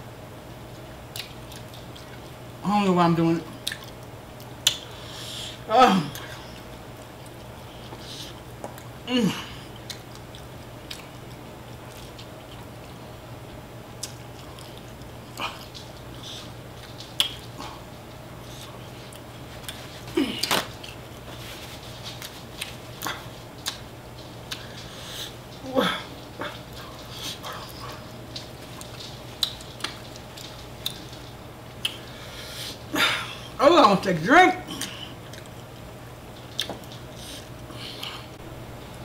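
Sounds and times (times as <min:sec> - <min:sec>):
chewing and mouth smacks: 0:01.1 - 0:02.5, 0:03.6 - 0:05.0, 0:06.1 - 0:09.0, 0:09.6 - 0:13.0, 0:14.0 - 0:21.3, 0:22.0 - 0:25.6, 0:26.2 - 0:32.1, 0:34.7 - 0:38.2
person moaning: 0:05.6 - 0:06.3, 0:09.1 - 0:09.7, 0:20.1 - 0:20.6, 0:25.6 - 0:26.1.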